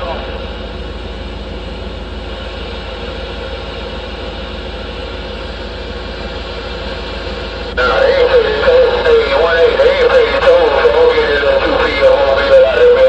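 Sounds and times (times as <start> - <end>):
low hum: 0.0 - 13.0
radio static hiss: 5.1 - 13.0.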